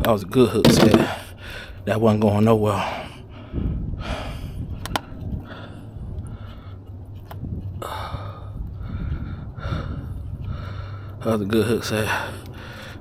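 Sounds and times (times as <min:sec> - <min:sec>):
low hum: 0:00.6 - 0:11.3
man breathing hard: 0:01.0 - 0:01.9, 0:02.7 - 0:13.0
sharp clicks: 0:04.8 - 0:05.1.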